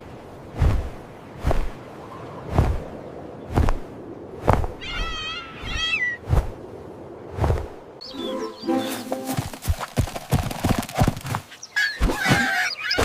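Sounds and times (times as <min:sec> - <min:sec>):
short warbling bird chirps: 0:08.0 - 0:09.2
bird wings flapping: 0:08.9 - 0:12.5.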